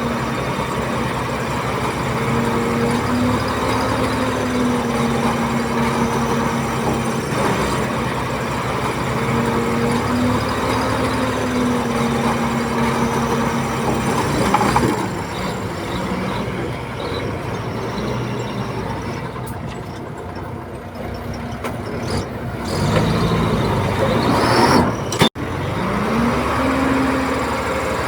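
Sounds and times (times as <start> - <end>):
heavy diesel engines running: 0.0 - 28.0
engine revving up: 22.0 - 28.0.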